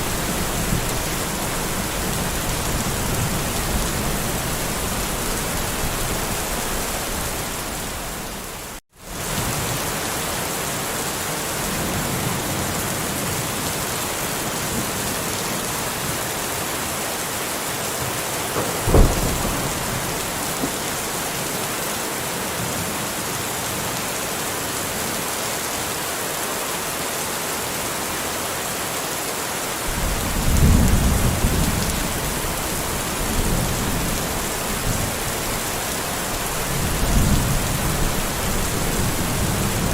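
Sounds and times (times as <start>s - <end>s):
heavy rain falling: 0.0s - 39.9s
low thunder rumble: 18.6s - 21.5s, 29.9s - 39.9s
thunder clap: 18.6s - 21.6s, 29.9s - 39.9s.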